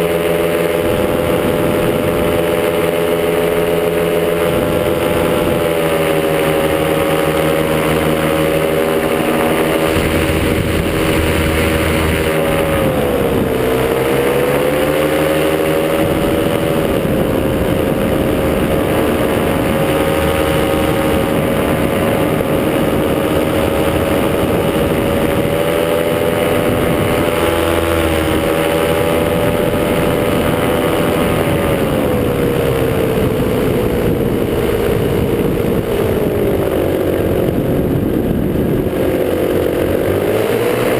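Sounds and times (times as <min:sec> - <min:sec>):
two-stroke paramotor engine: 0:00.0 - 0:40.9
wind noise: 0:00.0 - 0:40.9.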